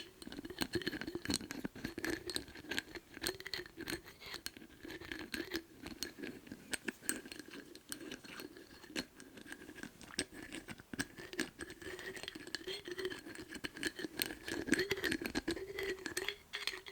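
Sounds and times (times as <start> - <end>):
scratchy rubbing: 1.0 - 16.9
lids clicking and tapping: 11.0 - 16.9.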